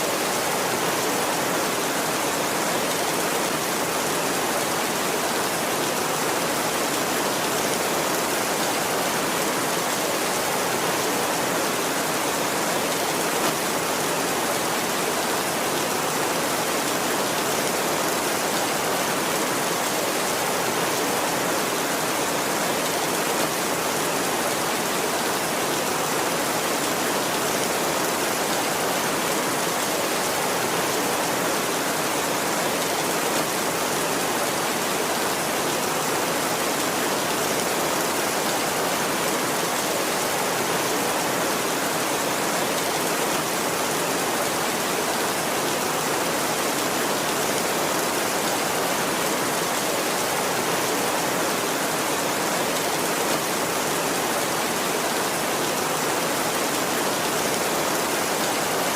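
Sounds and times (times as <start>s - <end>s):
heavy rain falling: 0.0s - 58.9s.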